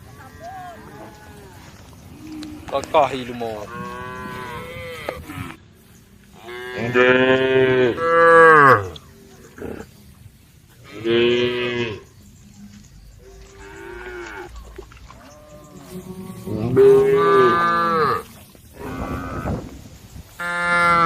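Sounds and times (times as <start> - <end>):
cow mooing: 0.2 - 5.6, 6.4 - 9.0, 13.2 - 19.7, 20.4 - 21.0.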